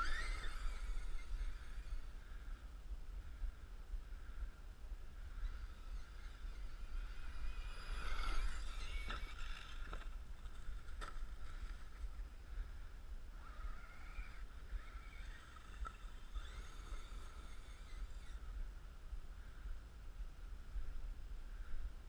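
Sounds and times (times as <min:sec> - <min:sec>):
electric motor whining: 0:00.0 - 0:02.6, 0:05.1 - 0:12.2, 0:13.3 - 0:18.6.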